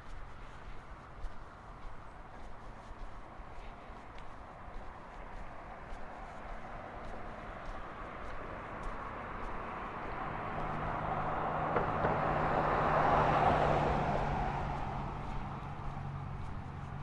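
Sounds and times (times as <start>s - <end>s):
low engine hum: 0.0s - 17.0s
vehicle passing by: 3.5s - 17.0s.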